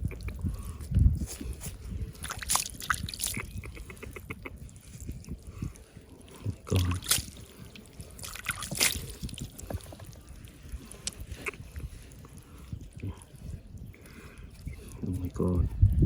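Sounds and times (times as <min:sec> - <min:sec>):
water sloshing and splashing: 0:01.9 - 0:15.8.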